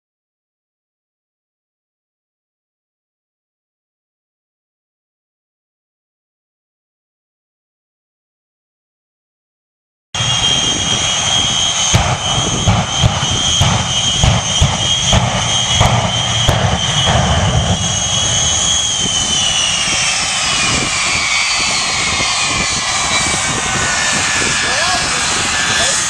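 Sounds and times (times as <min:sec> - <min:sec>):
jet engine whine: 0:10.2 - 0:26.0
sharp cracks: 0:12.0 - 0:19.7.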